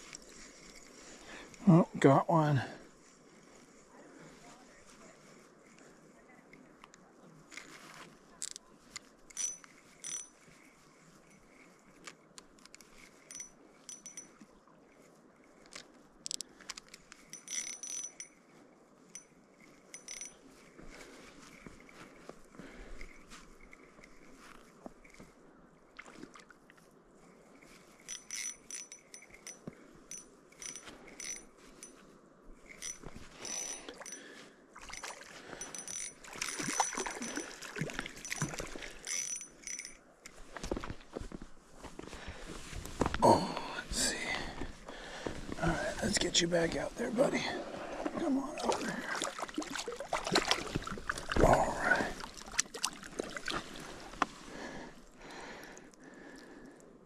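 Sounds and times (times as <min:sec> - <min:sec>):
fishing reel clicking: 0:08.4 - 0:18.5, 0:19.1 - 0:20.8, 0:27.6 - 0:32.0, 0:32.6 - 0:34.2, 0:34.8 - 0:40.4
scuffling and splashing: 0:46.8 - 0:54.7.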